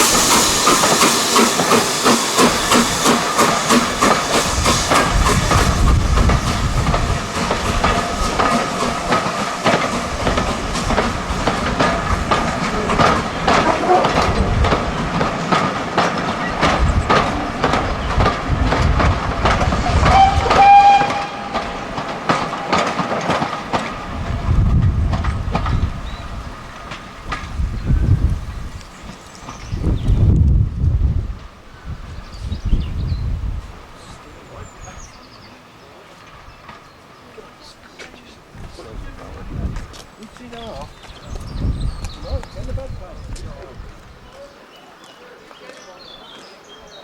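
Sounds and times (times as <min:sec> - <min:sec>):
steam locomotive beats: 0:00.0 - 0:35.5
steam hissing: 0:00.0 - 0:43.1.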